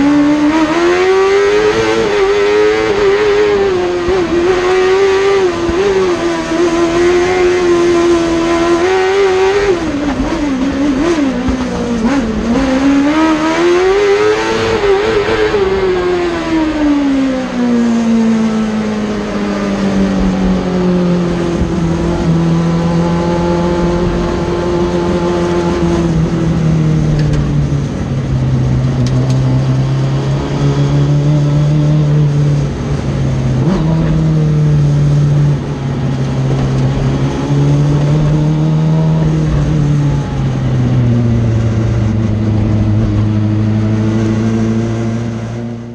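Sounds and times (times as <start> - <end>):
race car engine revving: 0.0 - 45.9.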